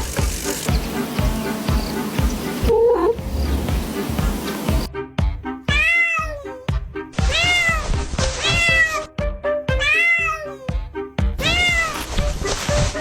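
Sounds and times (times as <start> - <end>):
background music: 0.0 - 13.0
cat meowing: 5.7 - 9.1, 9.7 - 10.7, 11.4 - 12.0.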